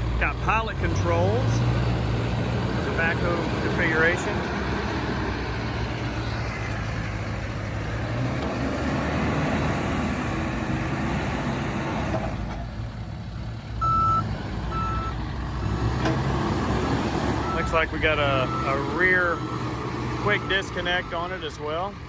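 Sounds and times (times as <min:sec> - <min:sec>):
backhoe diesel engine running: 0:00.0 - 0:22.0
reverse alarm beeps: 0:13.8 - 0:15.2, 0:17.4 - 0:19.5.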